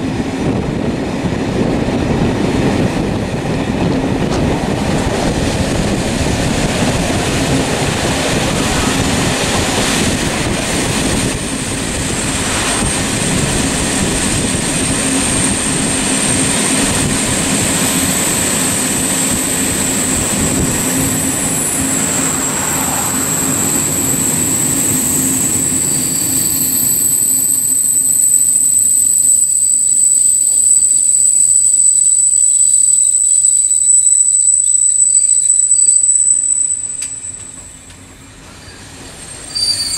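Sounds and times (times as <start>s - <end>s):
loud low rumbling: 0.0s - 26.6s
high-pitched squealing tones: 19.1s - 37.8s.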